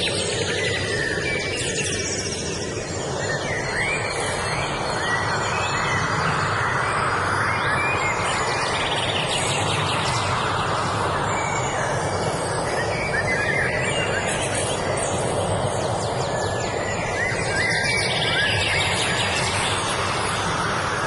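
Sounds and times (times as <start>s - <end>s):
birds chirping and singing: 0.0s - 21.0s
steady rushing noise: 0.0s - 21.0s.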